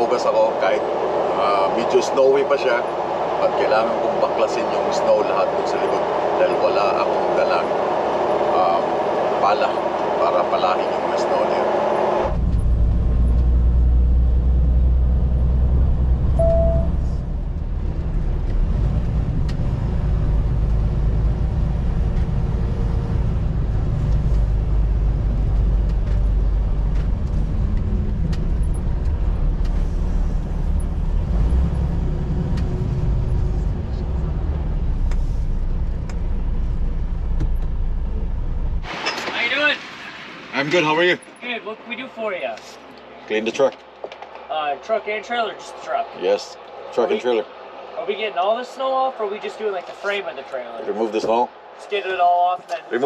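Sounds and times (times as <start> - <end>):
truck engine and road rumble: 0.0 - 53.0
brief beep: 16.4 - 17.2.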